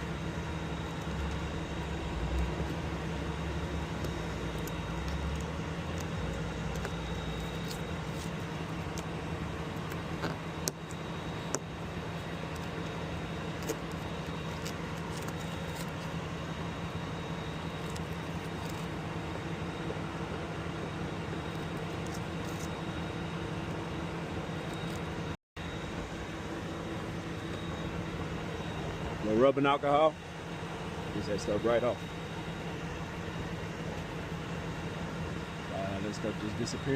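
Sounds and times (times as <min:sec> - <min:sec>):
vehicle engine humming: 0:00.0 - 0:36.9.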